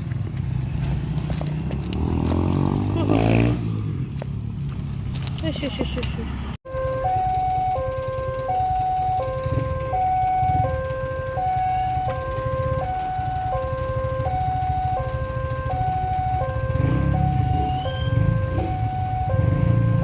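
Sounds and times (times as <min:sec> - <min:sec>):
idling traffic rumble: 0:00.0 - 0:20.0
level crossing alarm: 0:06.7 - 0:20.0.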